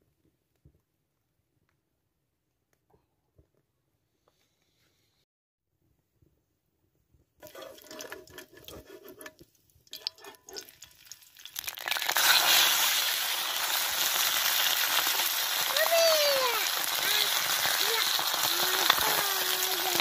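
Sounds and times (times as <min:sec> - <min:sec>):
metal skimmer scraping iron pan: 0:07.4 - 0:11.2
liver sizzling in hot oil: 0:07.4 - 0:20.0.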